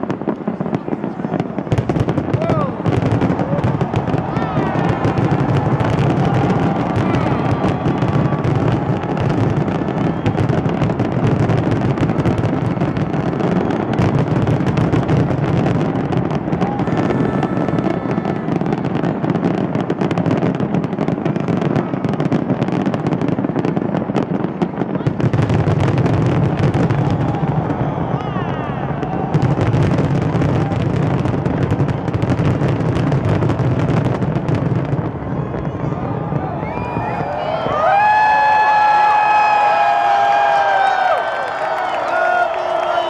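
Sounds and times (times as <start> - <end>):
fireworks bangs and crackles: 0.0 - 43.0.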